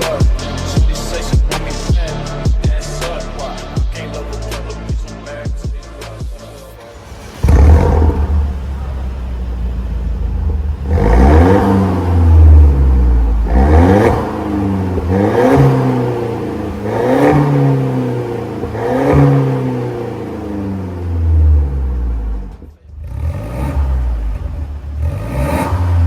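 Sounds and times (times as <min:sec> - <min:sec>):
car engine revving: 0:06.6 - 0:26.0.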